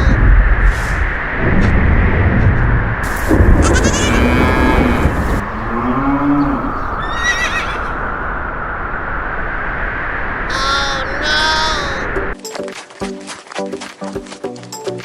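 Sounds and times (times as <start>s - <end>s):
steady background noise: 2.8s - 10.4s
farm animal calls: 3.3s - 7.8s
rising chirps: 3.4s - 8.4s.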